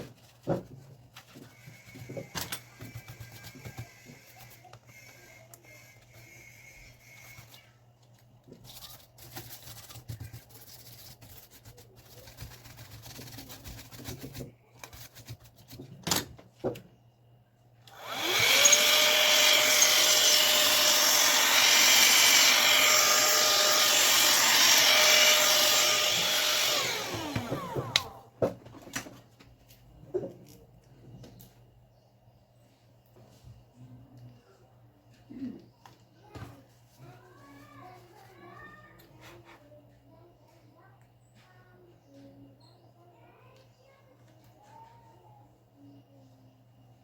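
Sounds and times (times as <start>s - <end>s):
electric air blower whining: 17.9s - 28.2s.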